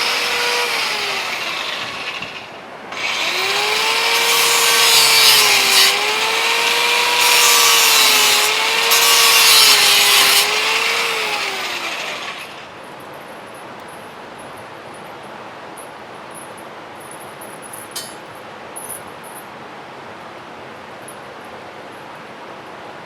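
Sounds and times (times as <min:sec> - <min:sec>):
power tool cutting: 0:00.0 - 0:12.7.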